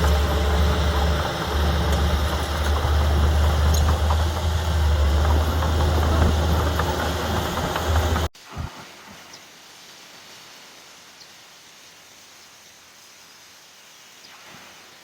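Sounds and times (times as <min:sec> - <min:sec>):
bulldozer diesel engine running: 0:00.0 - 0:08.3.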